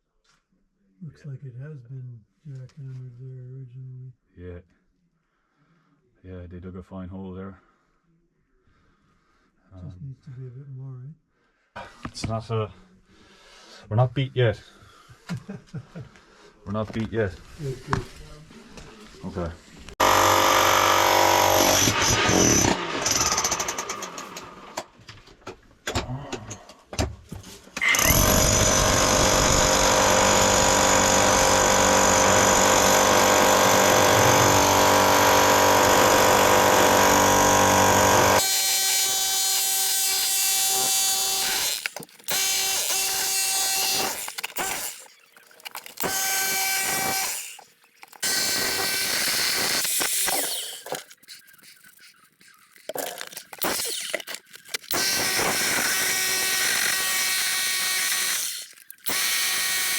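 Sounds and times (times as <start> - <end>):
jackhammer breaking concrete: 20.0 - 24.8, 27.8 - 45.1, 45.7 - 51.0, 52.9 - 59.9.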